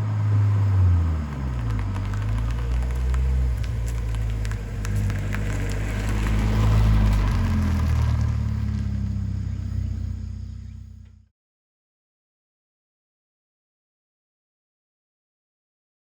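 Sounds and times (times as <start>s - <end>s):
car engine driving: 0.0s - 11.3s.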